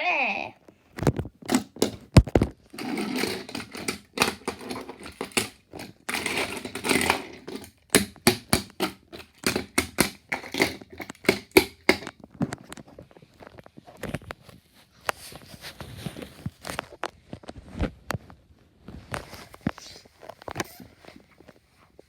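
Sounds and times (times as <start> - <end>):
plush toys bouncing on surface: 1.0 - 12.6.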